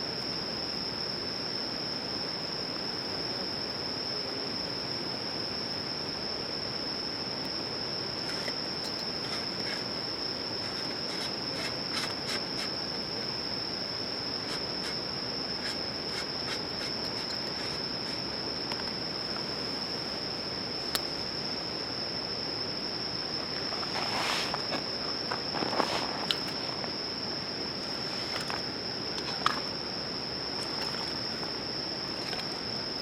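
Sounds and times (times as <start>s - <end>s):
insects trilling: 0.0s - 33.0s
rustling: 23.2s - 27.0s.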